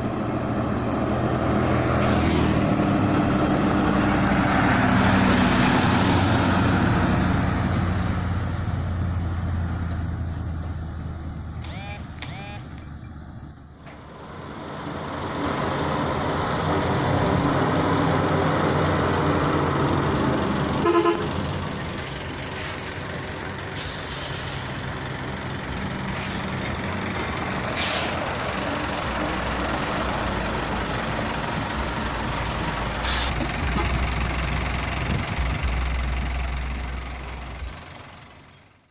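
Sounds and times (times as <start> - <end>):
truck diesel engine running: 0.0 - 38.9
truck horn toot: 20.8 - 21.4, 33.1 - 34.1.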